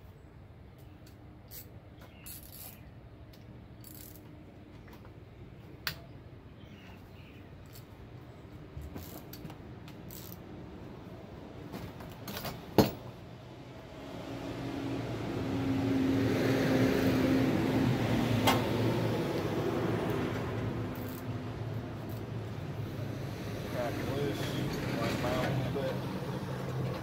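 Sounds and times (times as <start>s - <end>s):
metallic clicks of tools: 1.0s - 4.4s, 8.9s - 10.4s, 21.0s - 21.3s.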